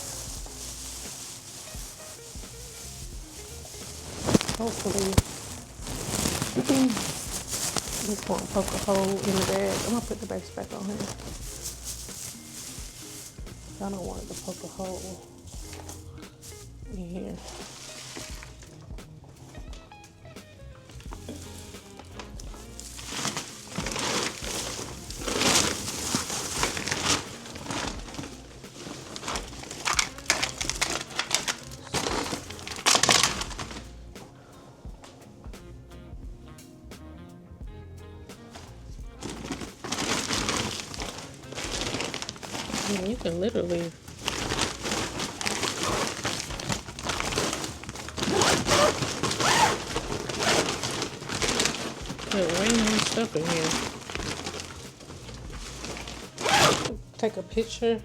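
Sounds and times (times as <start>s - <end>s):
storage bag crinkling: 0.0s - 34.4s, 38.4s - 57.0s.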